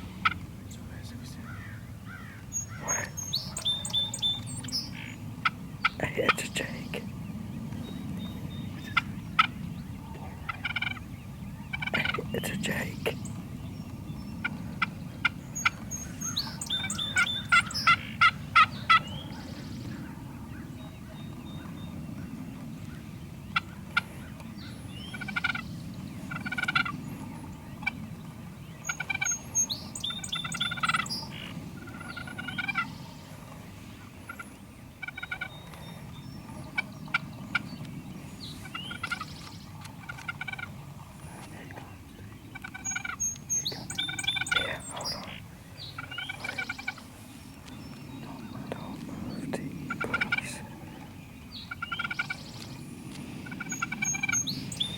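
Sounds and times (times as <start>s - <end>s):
songbirds chirping: 0.0s - 54.9s
turkey gobbling: 0.2s - 0.4s, 10.3s - 11.1s, 11.7s - 12.2s, 14.4s - 19.4s, 25.1s - 25.7s, 26.3s - 26.9s, 28.9s - 29.7s, 30.3s - 33.5s, 34.3s - 35.5s, 38.9s - 39.3s, 40.0s - 41.1s, 42.5s - 43.4s, 44.0s - 45.4s, 46.0s - 47.0s, 49.9s - 50.8s, 51.7s - 52.4s, 53.4s - 54.5s.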